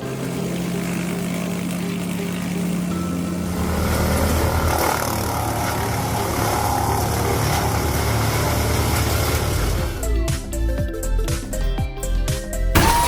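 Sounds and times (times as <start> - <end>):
wood chipper running: 0.0 - 10.8, 12.8 - 13.0.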